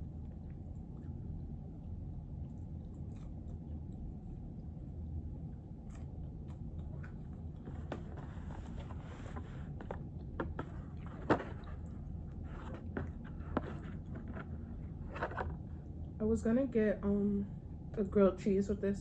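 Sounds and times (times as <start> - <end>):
steady low hum: 0.0 - 19.0
person chewing: 2.4 - 4.9, 5.6 - 9.0.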